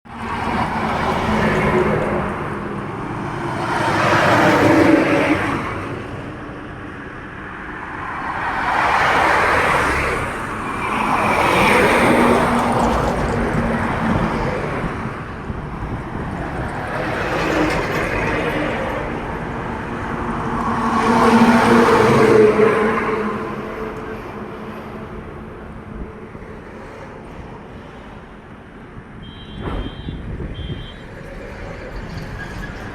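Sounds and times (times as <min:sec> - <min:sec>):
highway traffic passing: 0:00.0 - 0:32.9.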